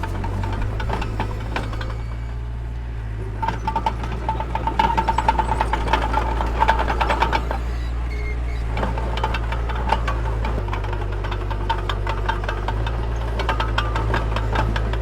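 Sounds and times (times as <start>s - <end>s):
metallic clanks: 0.0s - 2.3s, 3.3s - 15.0s
metallic squeal: 0.0s - 2.5s, 3.4s - 9.9s
diesel engine droning: 0.0s - 15.0s.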